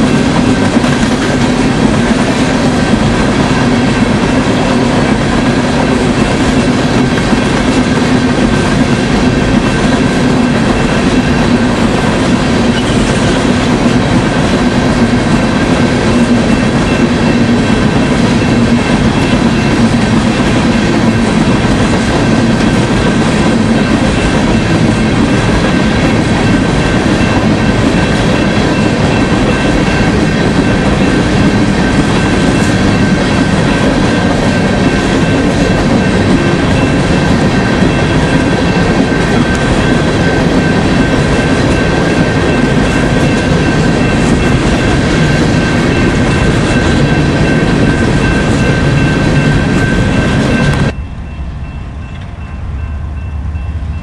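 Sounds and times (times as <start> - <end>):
clickety-clack of rail joints: 0.0 - 51.0, 51.6 - 54.0
steel wheels rumbling on rail: 0.0 - 54.0
high-pitched ringing: 15.3 - 54.0.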